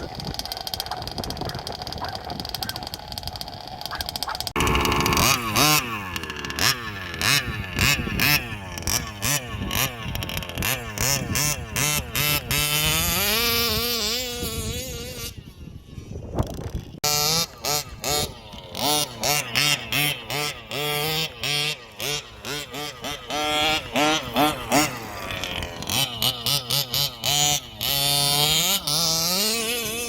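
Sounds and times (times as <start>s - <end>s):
two-stroke engine revving: 0.0s - 30.0s.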